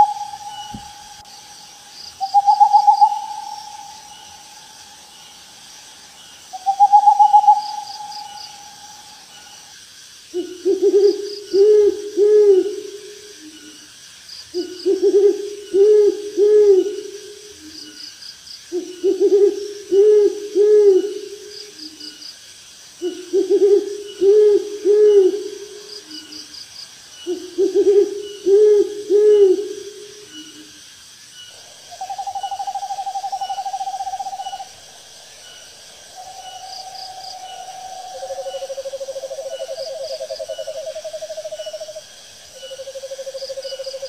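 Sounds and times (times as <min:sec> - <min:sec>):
owl hooting: 0:00.0 - 0:05.1, 0:06.5 - 0:09.7, 0:10.3 - 0:13.8, 0:14.6 - 0:17.8, 0:18.7 - 0:21.4, 0:23.0 - 0:26.4, 0:27.2 - 0:30.7, 0:31.6 - 0:34.8
insects chirping at night: 0:00.0 - 0:44.0.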